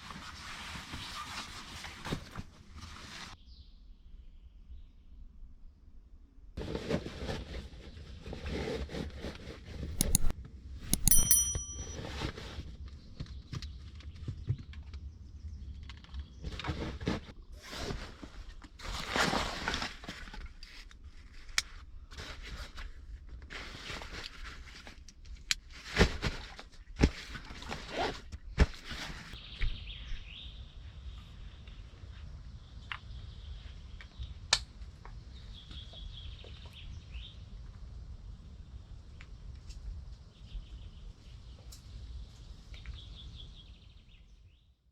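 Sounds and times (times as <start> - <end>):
rustling of handled objects: 9.9 - 12.0
metallic clink: 10.0 - 12.0.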